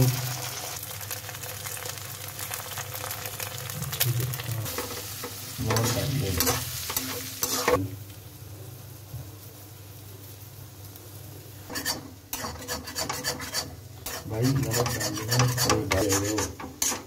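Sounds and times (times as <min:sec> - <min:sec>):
eggs sizzling in a pan: 0:00.0 - 0:17.0
metal spatula scraping: 0:04.7 - 0:07.8, 0:11.7 - 0:17.0.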